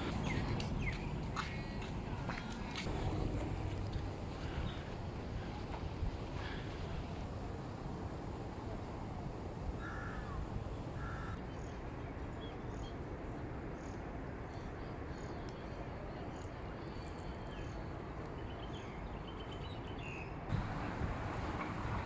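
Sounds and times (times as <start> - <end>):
steady background rumble: 0.0 - 17.2.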